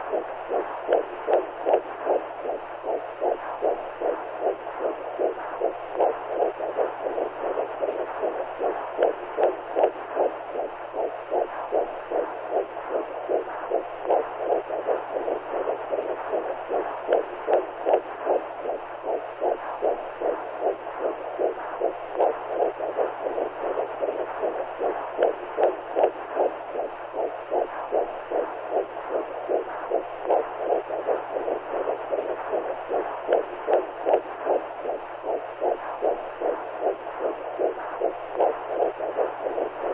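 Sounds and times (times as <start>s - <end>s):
faint low hum: 0.0s - 39.9s
pulsing heartbeat-like whoosh: 0.0s - 39.9s.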